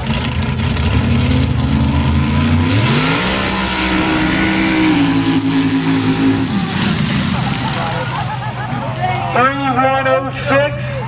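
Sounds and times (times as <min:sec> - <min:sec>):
truck engine revving: 0:00.0 - 0:09.8.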